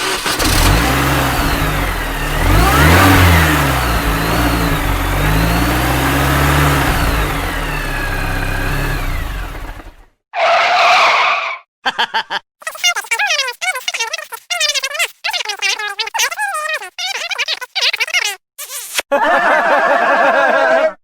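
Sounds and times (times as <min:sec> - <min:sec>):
car engine revving: 0:00.0 - 0:10.1.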